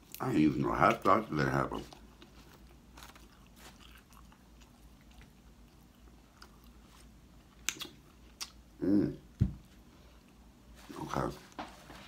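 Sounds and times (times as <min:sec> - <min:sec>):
faint chewing: 0:00.0 - 0:08.7, 0:09.8 - 0:10.7.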